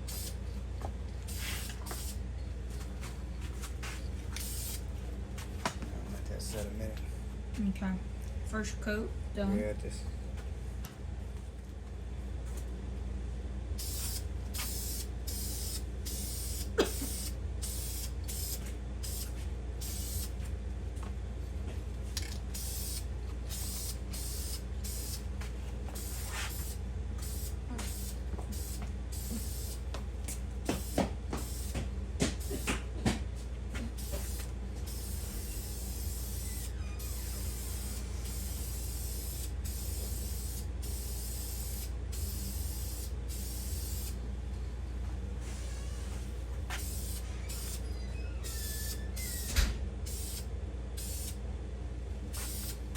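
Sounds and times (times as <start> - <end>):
paint spraying in hissing bursts: 0.0 - 0.4, 1.3 - 2.2, 4.4 - 4.8, 13.8 - 20.4, 22.6 - 25.2, 25.9 - 29.8, 30.7 - 31.8, 34.0 - 44.2, 46.7 - 47.8, 50.1 - 51.4, 52.3 - 52.9
steady low hum: 0.0 - 52.9.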